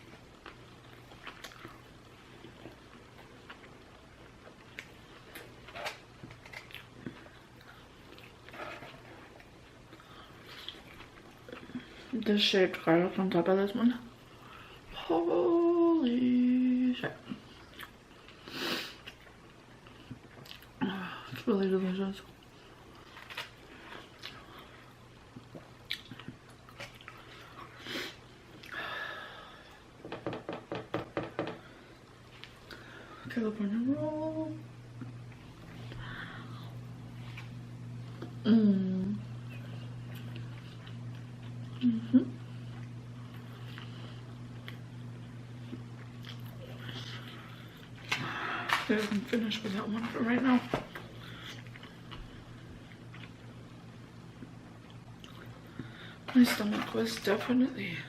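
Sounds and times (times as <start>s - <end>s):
faint steady hum: 0.0s - 58.0s
person chewing: 0.2s - 11.9s, 17.6s - 20.8s, 22.8s - 27.8s, 42.6s - 48.9s, 54.4s - 56.0s
chewing and mouth smacks: 0.4s - 5.5s, 17.6s - 18.4s, 19.0s - 20.8s, 25.3s - 27.7s, 45.6s - 48.2s, 54.4s - 55.6s.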